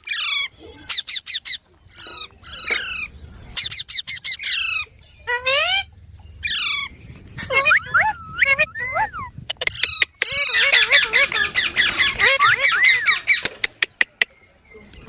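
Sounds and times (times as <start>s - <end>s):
parakeet screeching: 2.1s - 13.6s
sharp clicks: 13.3s - 14.4s.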